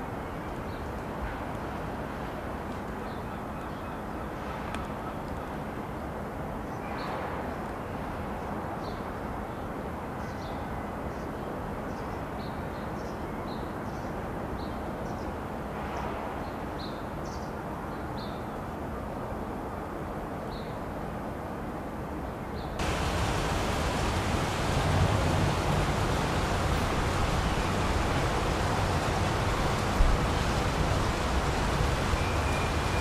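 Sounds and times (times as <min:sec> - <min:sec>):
outdoor background hum: 0:22.8 - 0:33.0.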